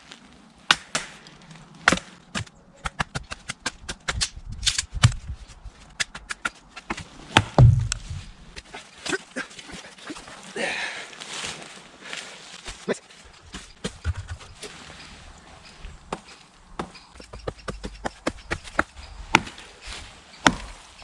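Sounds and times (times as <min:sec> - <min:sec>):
baton striking knife spine: 0:05.9 - 0:08.7, 0:13.4 - 0:14.7.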